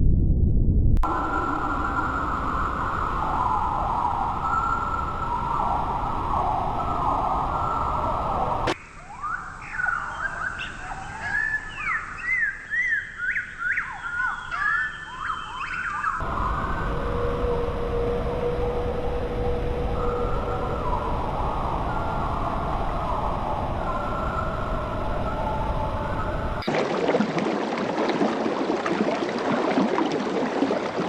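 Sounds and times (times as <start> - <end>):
steady noise with wavering hum: 0.0 - 12.8, 16.2 - 27.0
bird singing whistled chirps: 1.2 - 8.4, 9.0 - 26.5.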